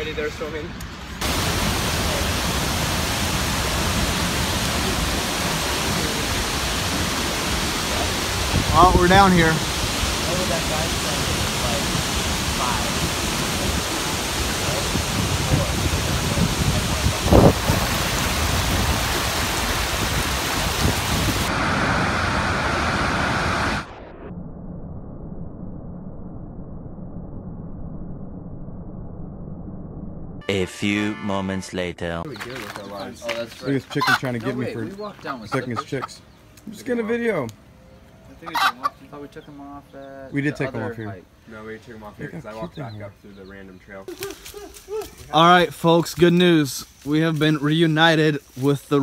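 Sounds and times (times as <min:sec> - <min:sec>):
waterfall rushing: 0:01.2 - 0:23.9.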